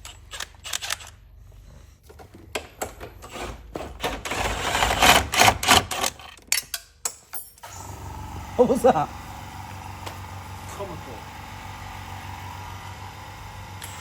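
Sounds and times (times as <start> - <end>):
mechanical clicking and rattling: 0.0 - 1.2, 2.2 - 7.3.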